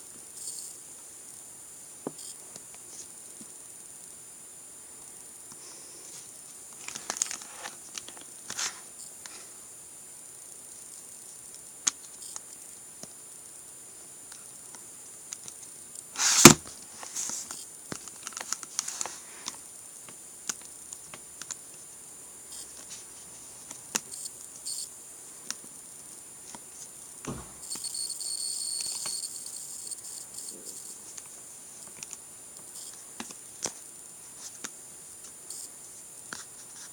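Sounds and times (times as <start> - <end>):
faint high-pitched whine: 0.0 - 36.9
knock: 27.3 - 27.6.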